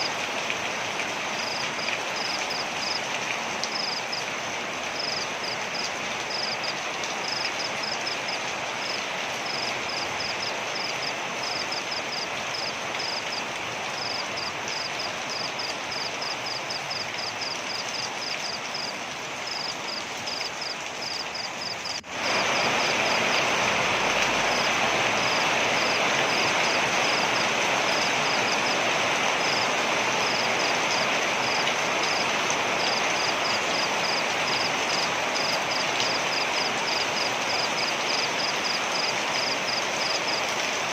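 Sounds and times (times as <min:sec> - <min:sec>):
waterfall rushing: 0:22.0 - 0:37.0.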